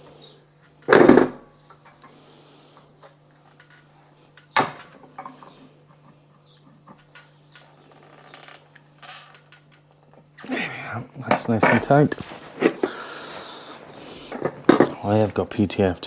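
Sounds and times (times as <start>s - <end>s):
bird chirping: 5.4s - 8.5s.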